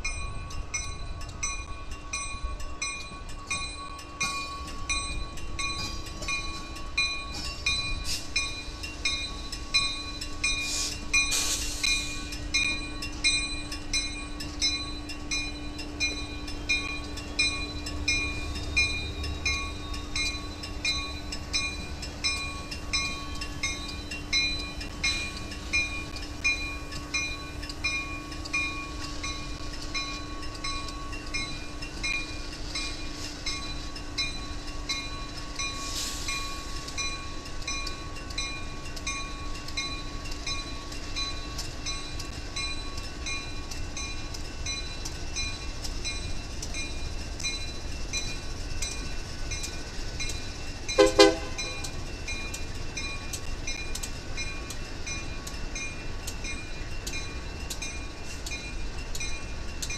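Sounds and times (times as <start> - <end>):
crossing warning bell dinging: 0.0 - 59.9
diesel locomotives rumbling: 0.0 - 59.9
short hiss: 10.6 - 12.3, 35.8 - 36.9.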